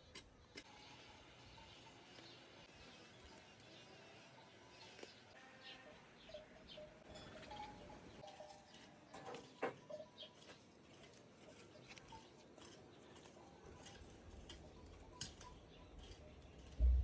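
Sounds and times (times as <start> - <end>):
low thump: 16.8 - 17.0.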